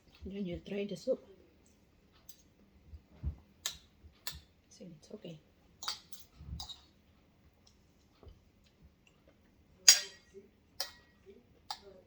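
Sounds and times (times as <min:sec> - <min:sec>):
tableware clinking: 0:09.8 - 0:11.9.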